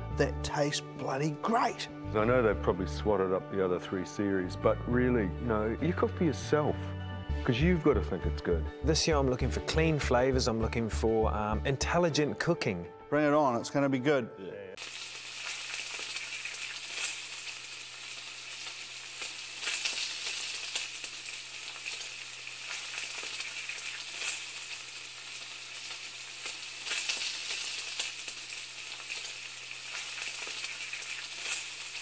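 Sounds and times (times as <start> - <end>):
food sizzling in a pan: 14.8 - 32.0.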